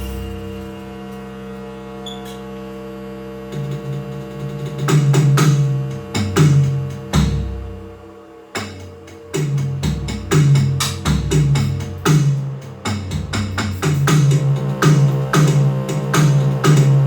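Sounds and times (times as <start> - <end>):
low bass notes: 0.0 - 17.0
synthesizer drone: 0.0 - 17.0
electronic drum hits: 8.6 - 17.0.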